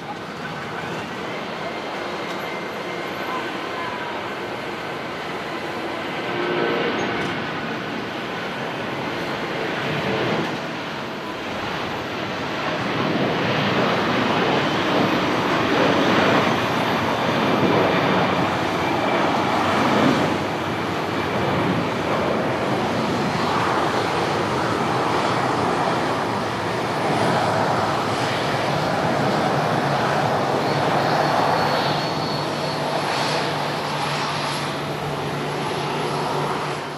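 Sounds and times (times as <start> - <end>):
jet engine roar: 0.0 - 36.9
faint high whine: 30.3 - 36.9.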